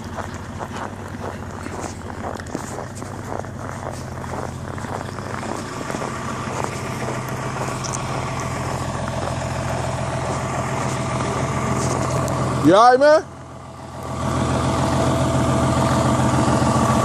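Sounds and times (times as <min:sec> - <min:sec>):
faint footstep crunches: 0:00.0 - 0:12.5
vehicle engine idling: 0:00.0 - 0:17.0.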